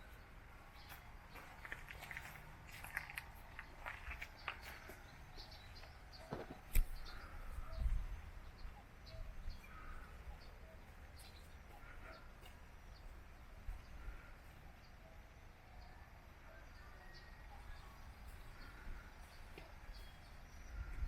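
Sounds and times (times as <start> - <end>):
birds chirping: 0.0 - 21.0
footsteps: 0.8 - 6.9.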